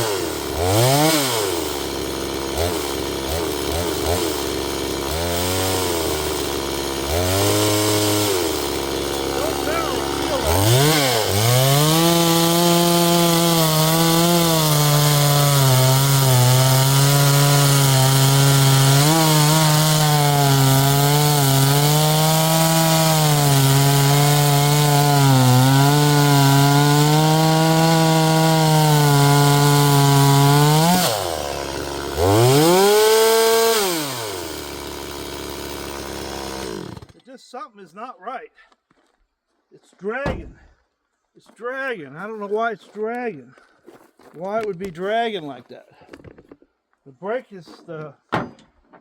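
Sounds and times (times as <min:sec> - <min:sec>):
chainsaw cutting log: 0:00.0 - 0:37.3.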